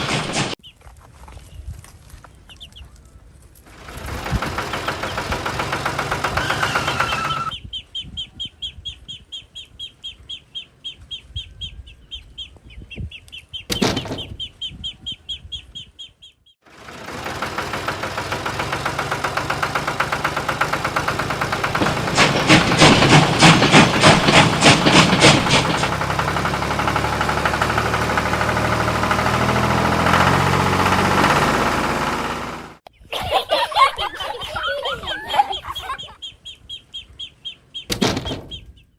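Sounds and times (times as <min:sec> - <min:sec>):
small engine running: 0:03.6 - 0:07.6, 0:16.7 - 0:32.8
high bird chirping: 0:06.6 - 0:16.6.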